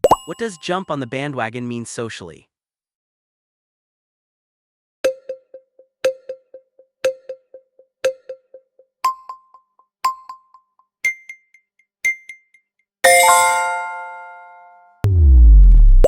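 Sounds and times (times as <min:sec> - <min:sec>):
electronic timer ticks: 0:05.0 - 0:12.6.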